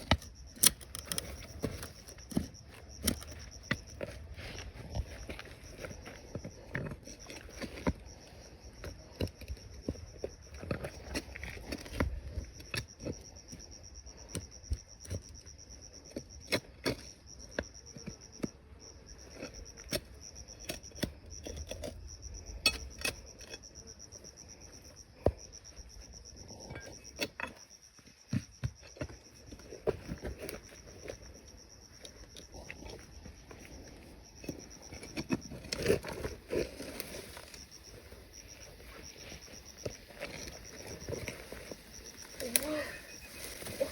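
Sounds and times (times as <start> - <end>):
high-pitched insect chirring: 12.4 - 29.4, 30.6 - 43.9.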